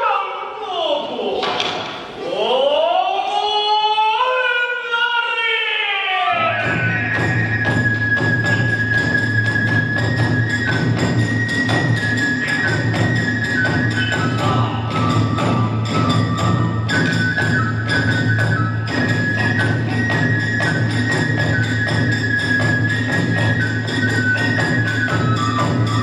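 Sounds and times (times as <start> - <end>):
bamboo flute: 6.1 - 26.0
drums beating: 6.3 - 26.0.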